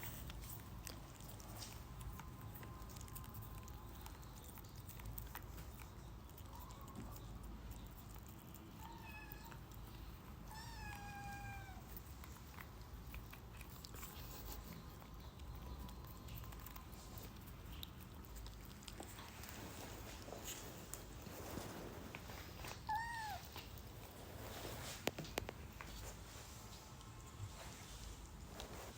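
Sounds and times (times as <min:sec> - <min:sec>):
kitten meowing: 0:08.8 - 0:09.6, 0:10.5 - 0:11.9, 0:22.8 - 0:23.6.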